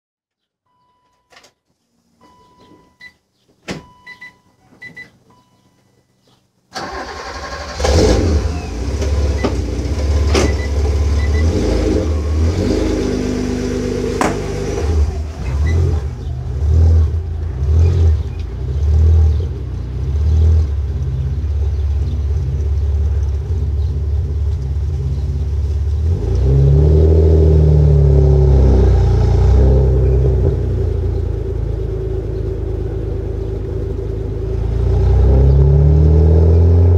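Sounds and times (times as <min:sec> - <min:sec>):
short beeps: 0:00.7 - 0:01.4, 0:02.2 - 0:03.2, 0:03.8 - 0:06.2
car engine starting and idling: 0:06.7 - 0:36.9
car engine revving: 0:06.8 - 0:36.9.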